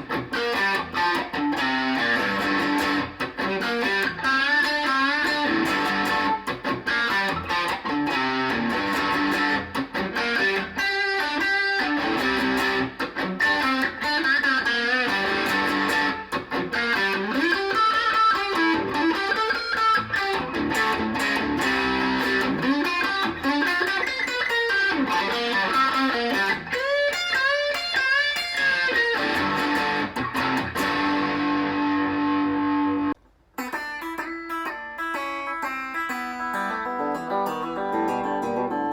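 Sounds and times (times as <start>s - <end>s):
electric guitar lead lines: 0.0s - 38.9s.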